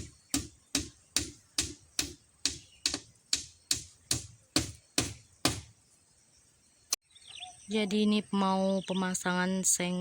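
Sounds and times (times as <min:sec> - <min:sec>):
hammer driving nails: 0:00.0 - 0:05.7.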